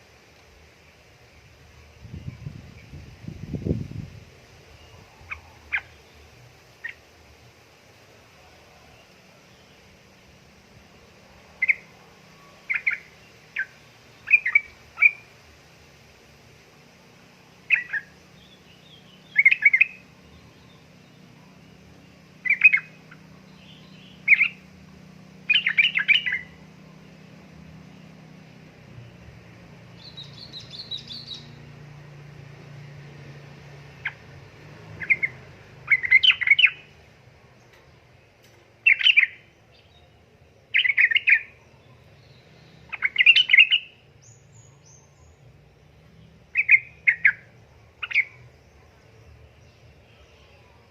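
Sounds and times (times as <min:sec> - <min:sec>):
bird chattering calls: 0:05.2 - 0:06.1, 0:12.6 - 0:15.3, 0:17.7 - 0:18.2, 0:22.4 - 0:24.7, 0:25.4 - 0:26.6, 0:34.0 - 0:34.3, 0:35.0 - 0:37.0, 0:38.8 - 0:39.4, 0:40.8 - 0:41.6, 0:42.9 - 0:44.0, 0:46.5 - 0:48.4.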